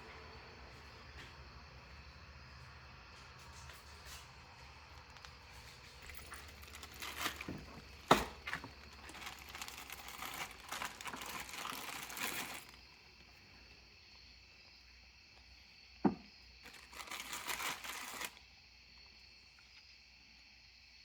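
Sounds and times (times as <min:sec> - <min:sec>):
rustling and clattering: 0:03.4 - 0:13.4.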